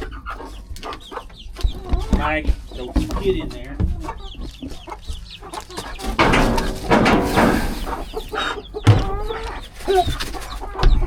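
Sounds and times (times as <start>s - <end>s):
chickens clucking: 0.0s - 11.0s
sharp knocks: 6.0s - 9.1s.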